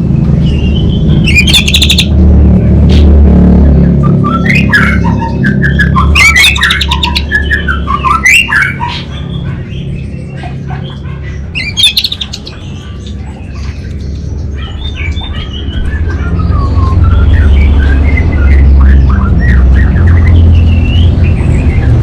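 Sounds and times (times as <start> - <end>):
thrush singing with trills: 0.3 - 2.2, 3.6 - 9.8, 11.4 - 22.0.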